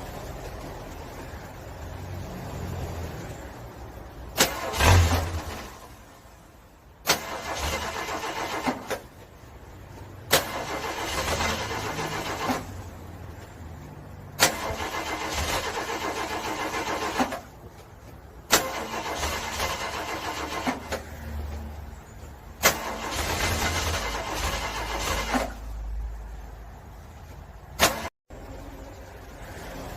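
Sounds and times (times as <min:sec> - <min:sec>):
car engine cranking: 0:04.3 - 0:06.2, 0:07.0 - 0:13.4, 0:14.2 - 0:21.2, 0:22.3 - 0:25.8.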